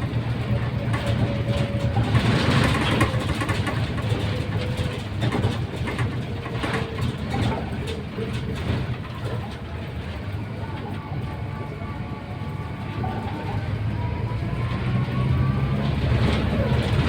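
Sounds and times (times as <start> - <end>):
light rattles: 0.0 - 13.5
bus engine rumble: 0.0 - 17.0
faint engine whine: 0.0 - 17.0.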